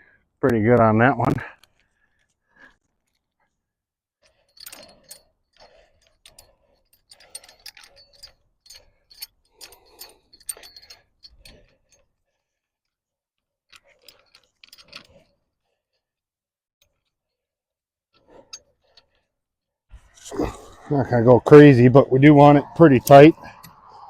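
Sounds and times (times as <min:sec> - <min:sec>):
wrenches clinking on metal hardware: 0:04.3 - 0:12.1, 0:13.7 - 0:15.4, 0:20.0 - 0:24.0.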